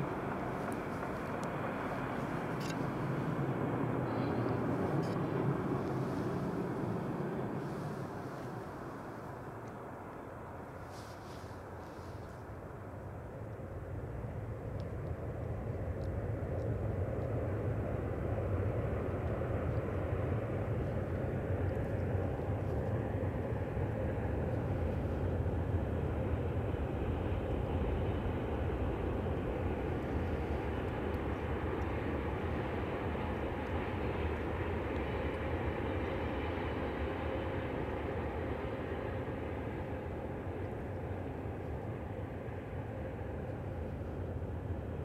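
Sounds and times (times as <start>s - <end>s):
distant train rumbling: 0.0s - 45.0s.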